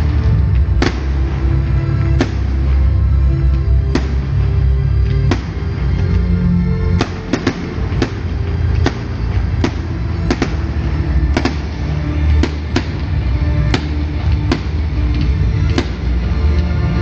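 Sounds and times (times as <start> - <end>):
fireworks bangs: 0.0 - 17.0
loud music with heavy bass: 0.0 - 17.0.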